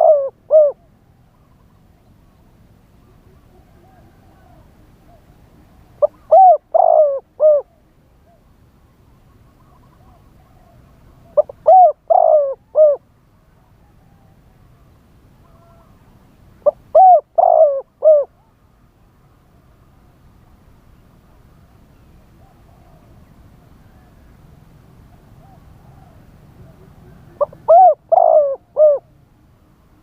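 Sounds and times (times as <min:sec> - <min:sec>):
dove cooing: 0:00.0 - 0:01.4, 0:03.0 - 0:05.3, 0:06.0 - 0:08.4, 0:09.6 - 0:13.1, 0:16.6 - 0:18.5, 0:22.4 - 0:23.2, 0:25.2 - 0:29.2.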